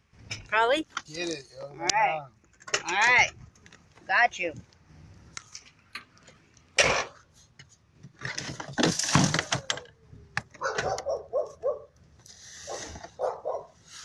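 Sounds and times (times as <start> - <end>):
clatter of objects being handled: 2.4 - 11.2
dog whining yelps: 10.6 - 11.9, 12.7 - 13.8.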